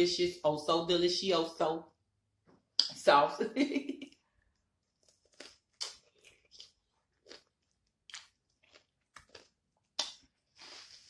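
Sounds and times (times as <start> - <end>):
chewing crunchy cucumber: 5.0 - 11.0.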